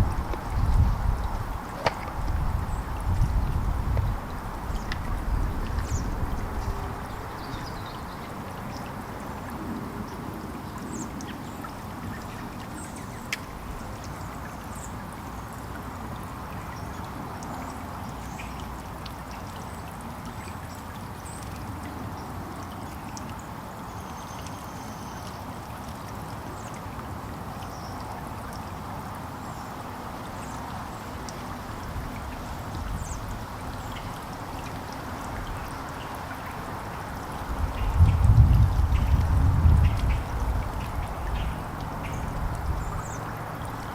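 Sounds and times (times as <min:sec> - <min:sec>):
songbirds chirping: 0:00.1 - 0:15.6, 0:32.2 - 0:43.9.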